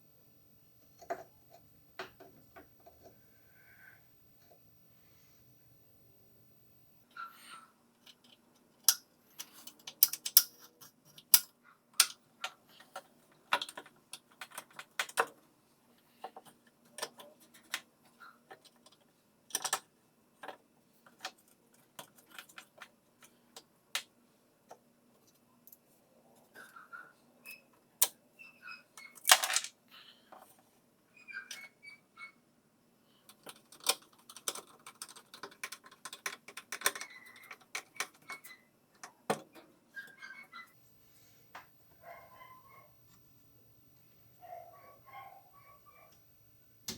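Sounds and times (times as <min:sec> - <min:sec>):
tools and metal parts clicking: 0:08.0 - 0:12.2, 0:29.1 - 0:29.7.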